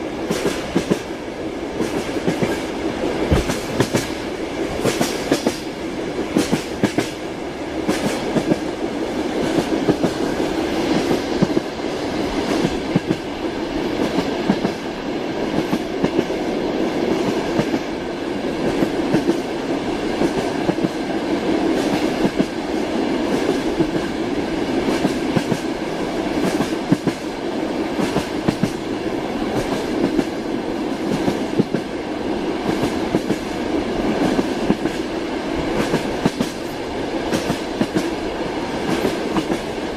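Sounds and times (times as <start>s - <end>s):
train wheels clacking: 0.0s - 32.0s, 32.6s - 39.9s
moving train rumble: 0.0s - 39.9s.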